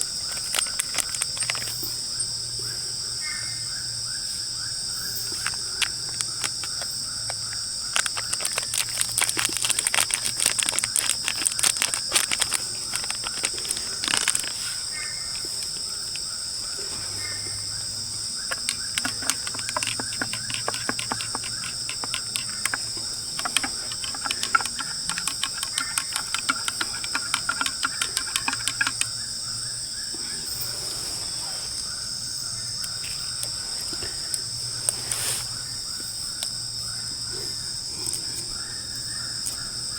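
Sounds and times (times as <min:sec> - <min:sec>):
sharp rapid clicks and crackles: 0:00.0 - 0:01.8, 0:07.9 - 0:14.6, 0:18.5 - 0:29.2
crickets trilling: 0:00.0 - 0:39.9.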